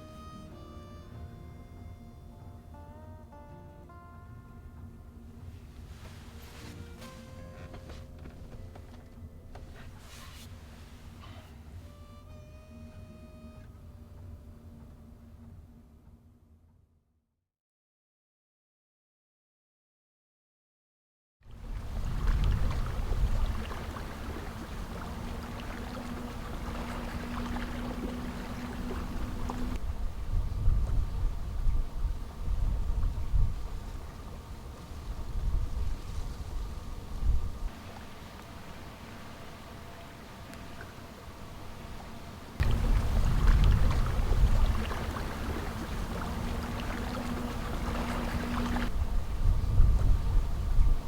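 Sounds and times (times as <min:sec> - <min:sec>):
faint steady hum: 0:00.0 - 0:16.5, 0:21.5 - 0:51.0
water lapping against boat: 0:05.6 - 0:12.0, 0:21.5 - 0:51.0
steady low rumble: 0:21.5 - 0:51.0.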